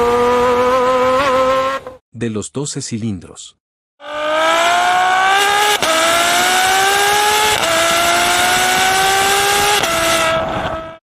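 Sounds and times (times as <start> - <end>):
car engine accelerating hard: 4.0 - 11.0.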